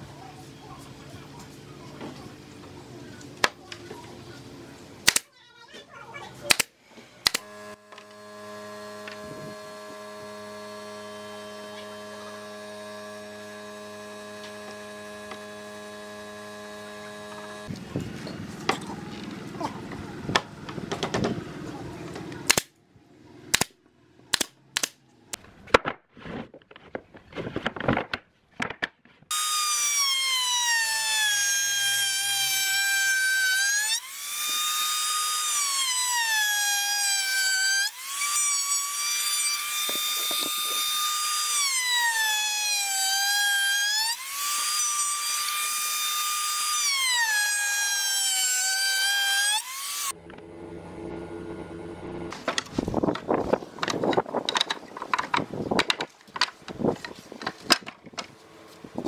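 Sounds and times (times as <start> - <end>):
electric drill whining: 7.3 - 17.7, 29.3 - 50.2
knocks and clicks: 52.4 - 58.3.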